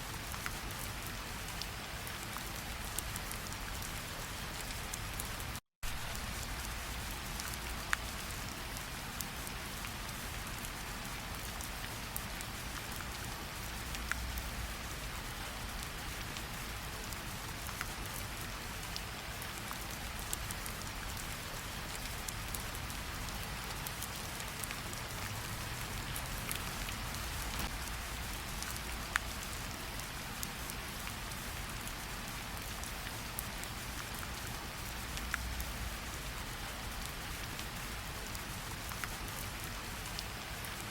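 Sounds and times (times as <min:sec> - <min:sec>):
rain hissing: 0:22.8 - 0:32.8.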